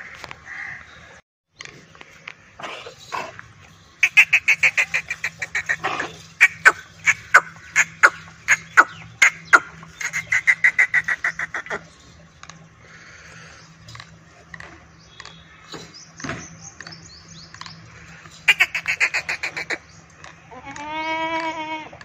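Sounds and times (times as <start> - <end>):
bird calling sharp notes: 4.0 - 20.4.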